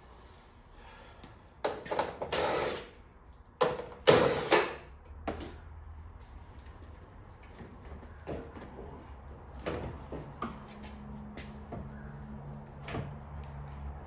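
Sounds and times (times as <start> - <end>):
car parts knocking and scraping: 1.6 - 2.4, 3.6 - 5.6, 6.7 - 13.9.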